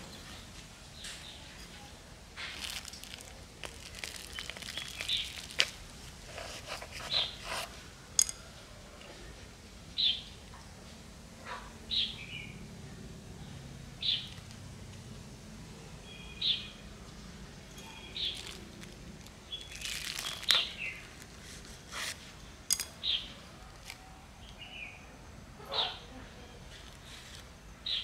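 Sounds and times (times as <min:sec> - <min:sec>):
small bird chirping: 0:02.6 - 0:05.7, 0:14.0 - 0:14.4, 0:16.0 - 0:16.9, 0:17.8 - 0:21.2.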